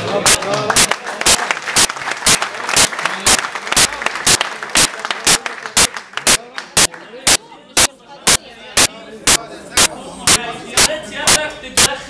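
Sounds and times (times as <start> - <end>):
rhythmic clapping: 0.0 - 11.9
voices: 6.3 - 12.0.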